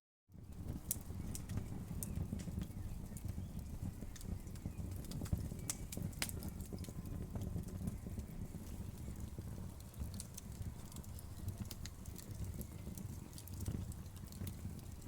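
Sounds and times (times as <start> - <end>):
wood fire crackling: 0.3 - 15.0.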